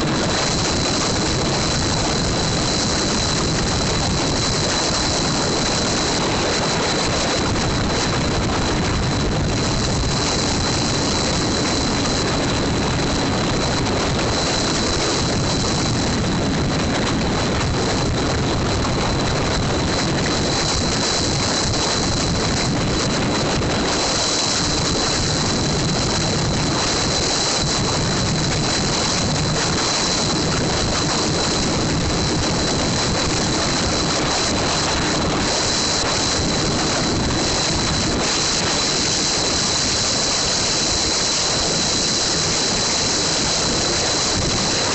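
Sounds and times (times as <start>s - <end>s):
steady rushing noise: 0.0s - 44.9s.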